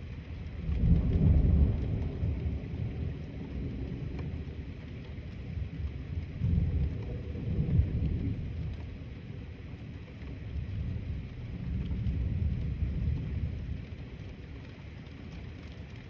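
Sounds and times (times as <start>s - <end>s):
rolling thunder: 0.5s - 4.8s, 5.5s - 8.9s.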